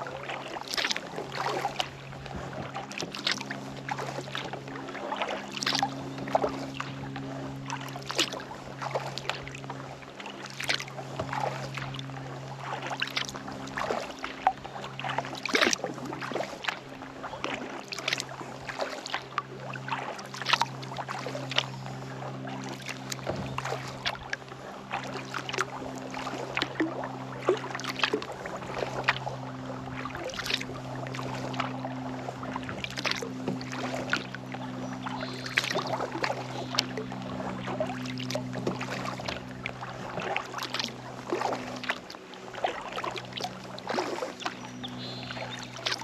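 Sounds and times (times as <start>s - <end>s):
kayak paddle splashing in water: 0.0s - 46.0s
steady low hum: 0.0s - 46.0s
water dripping off paddle: 30.0s - 31.7s, 32.4s - 42.0s, 42.7s - 46.0s.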